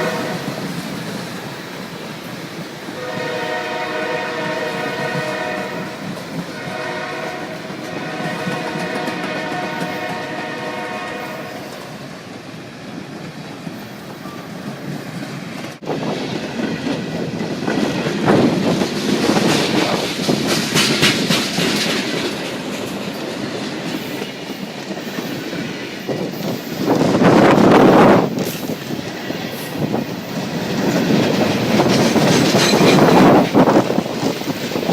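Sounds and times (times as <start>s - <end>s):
locomotive horn: 0.0s - 0.7s, 3.0s - 12.0s
train wheels clattering on rails: 0.0s - 34.9s.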